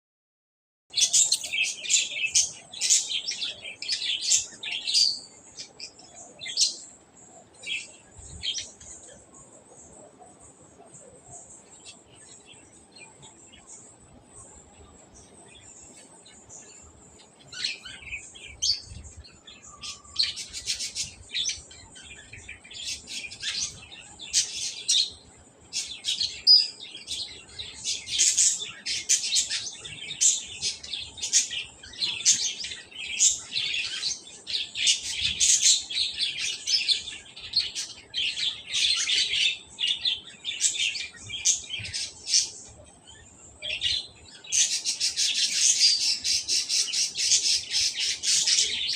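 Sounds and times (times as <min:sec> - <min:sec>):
small birds chirping: 0:00.9 - 0:48.9.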